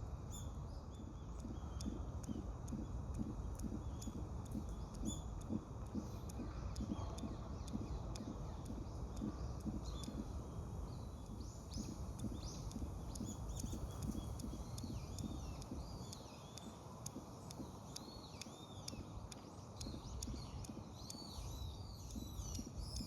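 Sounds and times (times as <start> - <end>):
soft low thumps: 1.1 - 16.0.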